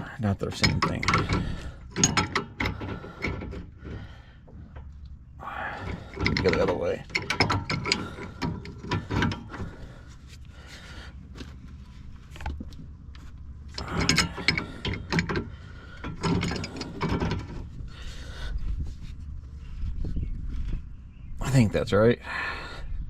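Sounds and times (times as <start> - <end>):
wrench clicking and scraping metal: 0.6 - 4.0, 5.8 - 9.8, 13.7 - 17.7.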